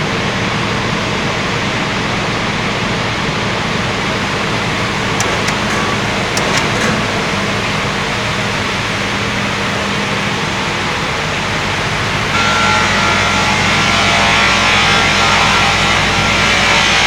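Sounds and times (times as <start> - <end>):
circular sawmill whining: 4.9 - 8.2.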